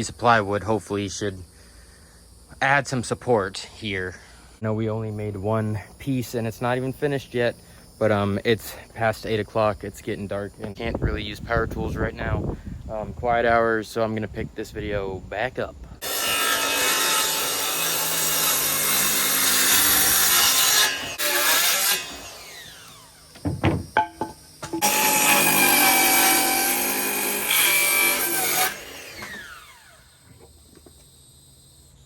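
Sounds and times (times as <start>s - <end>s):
power tool cutting plywood: 16.0s - 24.0s, 24.6s - 30.2s
knocks: 23.4s - 24.8s.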